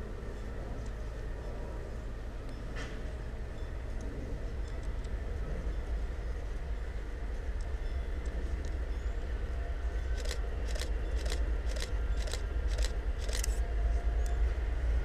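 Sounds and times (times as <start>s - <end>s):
diesel locomotive engine rumble: 0.0s - 15.0s
sharp high ticks: 10.2s - 13.6s.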